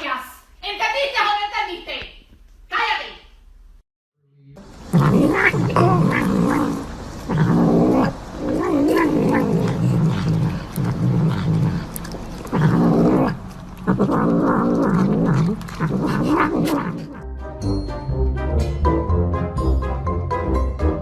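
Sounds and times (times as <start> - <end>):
cat yowling: 4.9 - 17.2.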